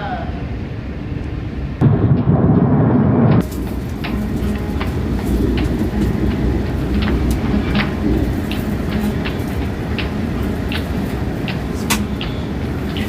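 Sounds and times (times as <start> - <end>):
train rumbling: 0.0 - 13.0
clicks and rattles: 3.4 - 13.0.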